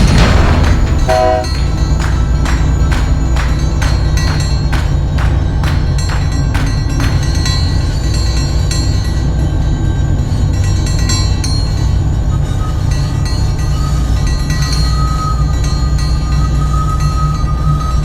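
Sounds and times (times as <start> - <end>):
locomotive low rumble: 0.0 - 3.3
thin high tone: 1.1 - 1.6.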